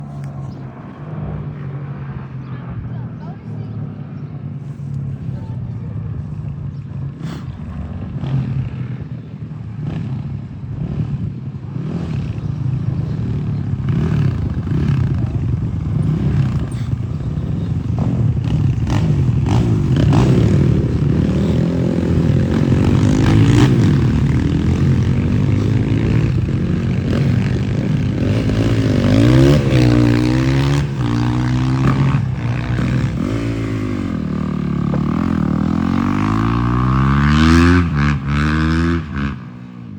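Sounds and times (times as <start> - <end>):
dirt bike engine revving: 9.7 - 39.9.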